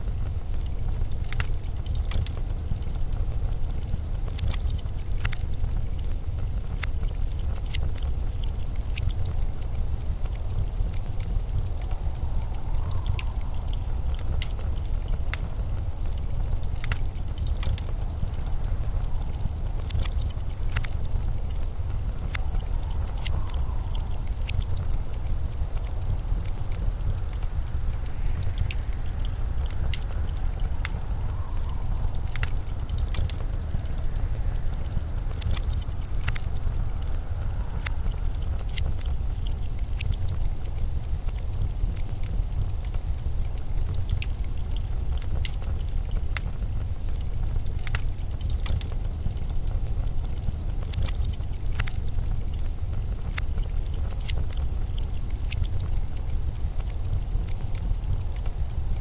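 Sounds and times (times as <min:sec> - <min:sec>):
sharp crackles and ticks: 0:00.0 - 0:59.0
wind rumble: 0:00.0 - 0:59.0
faint wind whistle: 0:10.4 - 0:16.8, 0:20.5 - 0:38.6.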